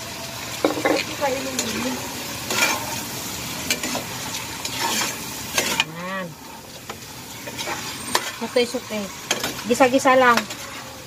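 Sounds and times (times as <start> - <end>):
food sizzling in a pot: 0.0 - 11.0
utensil scraping a pot: 2.4 - 3.0, 3.6 - 11.0.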